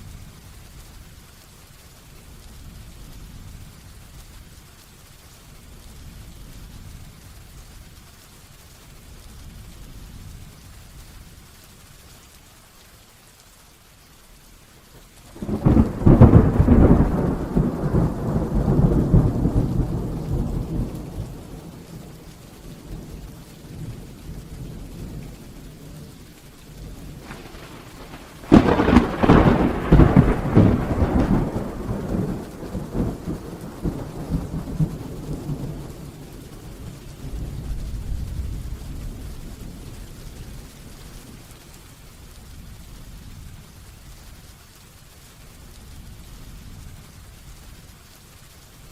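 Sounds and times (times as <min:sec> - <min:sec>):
heavy rain falling: 0:00.0 - 0:48.9
thunder cracking and rumbling: 0:15.3 - 0:41.7.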